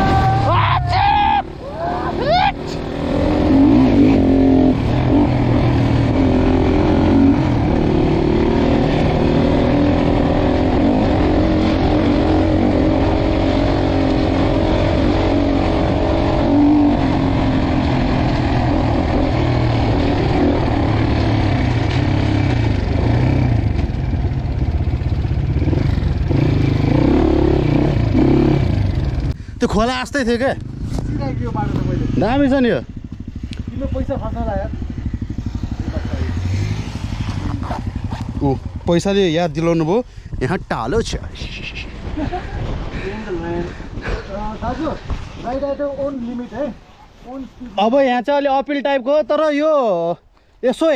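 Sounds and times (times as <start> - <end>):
dirt bike engine revving: 1.4 - 29.4, 30.2 - 39.8.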